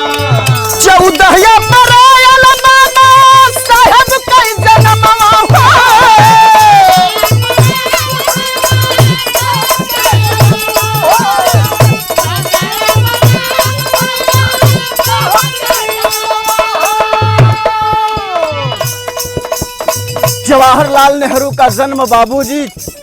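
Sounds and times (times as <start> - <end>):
hand drum beat: 0.0 - 23.0
jangling rattle percussion: 0.0 - 23.0.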